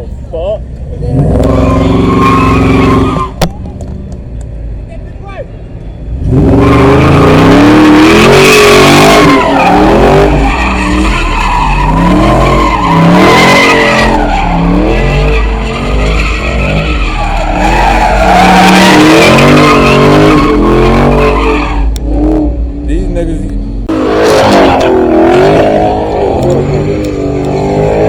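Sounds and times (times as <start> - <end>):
car engine revving: 0.8 - 4.4, 6.1 - 28.0
tyres squealing on pavement: 1.0 - 4.1, 6.4 - 22.2, 23.9 - 28.0.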